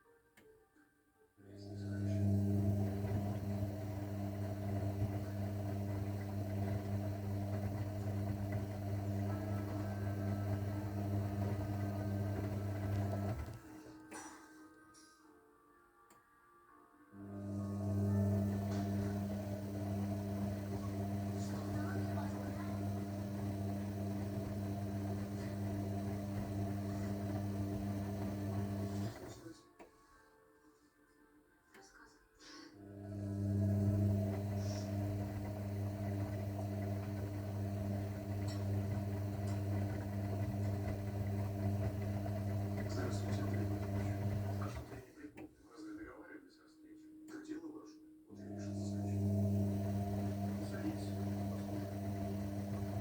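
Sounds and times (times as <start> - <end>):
washing machine humming: 1.6 - 14.0, 17.2 - 29.5, 32.8 - 45.6, 48.3 - 53.0.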